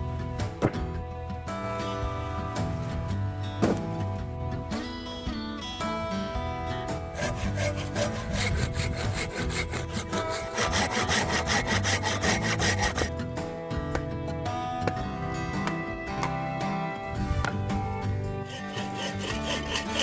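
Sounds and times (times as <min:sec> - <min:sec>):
background music: 0:00.0 - 0:20.0
hand saw cutting wood: 0:06.9 - 0:13.2, 0:17.4 - 0:20.0.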